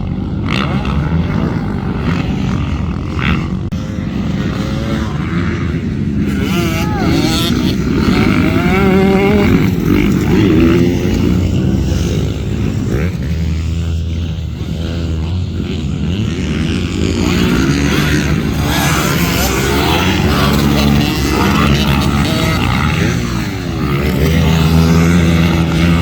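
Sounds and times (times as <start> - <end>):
dirt bike engines running: 0.0 - 26.0.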